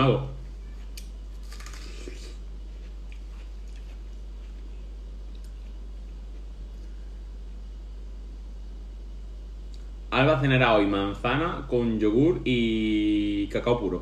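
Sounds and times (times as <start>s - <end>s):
steady low hum: 0.0s - 14.0s
wet bites and chewing: 0.9s - 7.0s.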